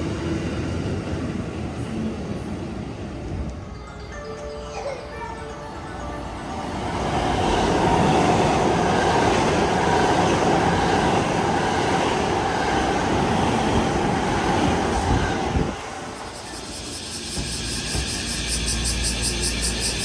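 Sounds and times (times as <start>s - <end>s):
train wheels rumbling on rails: 6.3s - 20.0s.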